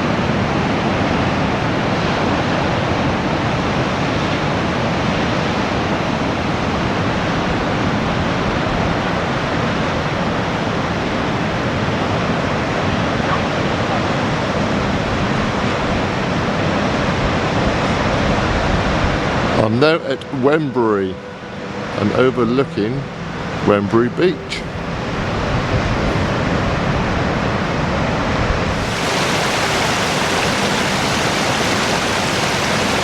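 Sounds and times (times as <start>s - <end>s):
sea surf breaking on shore: 22.6s - 33.0s.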